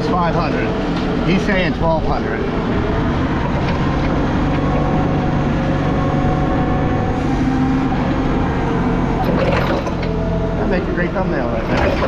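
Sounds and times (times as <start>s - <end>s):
heavy machine engine humming: 0.0s - 12.0s.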